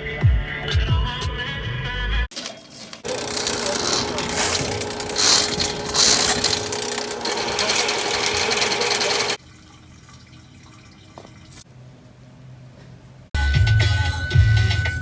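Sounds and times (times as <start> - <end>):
small machine clattering: 2.3 - 9.4.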